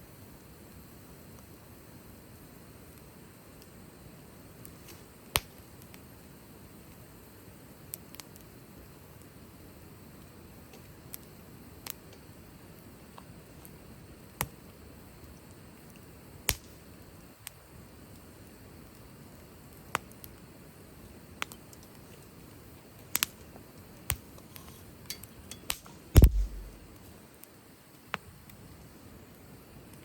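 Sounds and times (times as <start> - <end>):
wood fire crackling: 0.5 - 30.0
heavy knock with low thud: 26.2 - 26.8.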